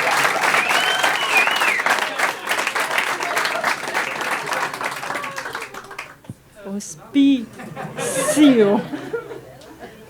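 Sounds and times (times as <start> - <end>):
audience applauding: 0.0 - 6.3
high rising whistle: 0.4 - 2.0.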